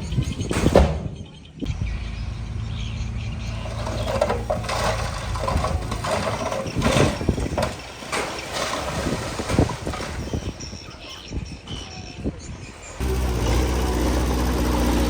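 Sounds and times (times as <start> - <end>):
diesel engine running: 1.7 - 7.8, 13.0 - 15.0
metallic clanks and knocks: 3.6 - 10.3.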